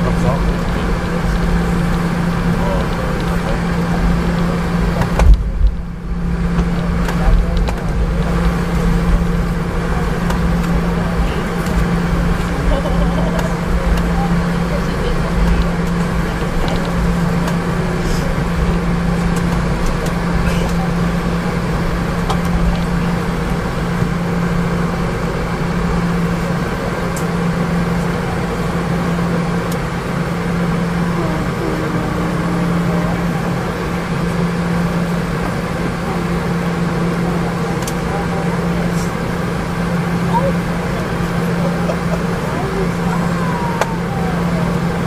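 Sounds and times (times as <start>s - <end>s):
aircraft cabin engine roar: 0.0s - 45.0s
steady low hum: 0.0s - 45.0s.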